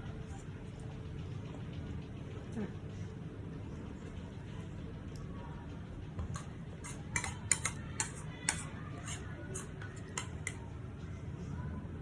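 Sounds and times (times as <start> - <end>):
spoon scraping a bowl: 6.2 - 10.6.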